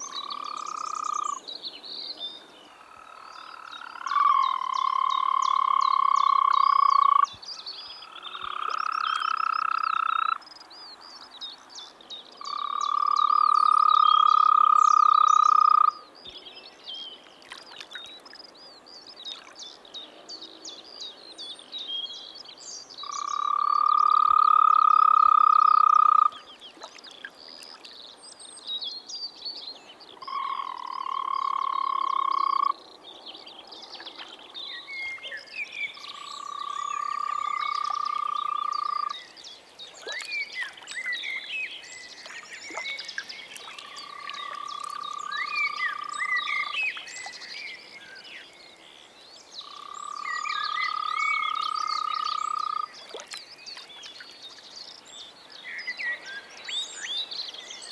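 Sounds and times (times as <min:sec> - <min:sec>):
toads trilling: 0:00.0 - 0:01.4, 0:02.8 - 0:07.4, 0:08.0 - 0:10.5, 0:12.4 - 0:16.0, 0:23.0 - 0:26.5, 0:30.2 - 0:33.0, 0:34.4 - 0:39.4, 0:40.0 - 0:47.5, 0:49.6 - 0:53.4.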